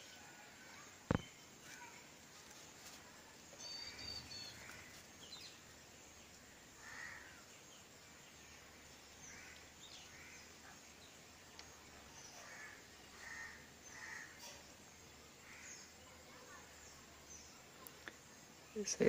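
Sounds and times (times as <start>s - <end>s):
faint bird calls: 2.9s - 5.6s, 6.8s - 7.7s, 9.1s - 10.9s, 11.6s - 18.3s.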